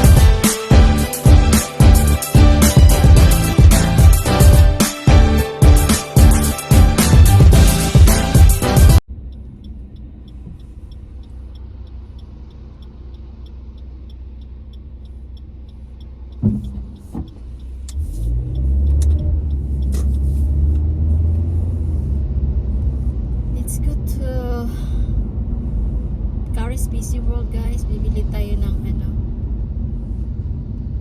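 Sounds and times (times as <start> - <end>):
low car cabin hum: 0.0 - 31.0
low rumble of car moving: 5.2 - 31.0
light regular ticking: 8.4 - 21.5
knocks: 16.4 - 17.3.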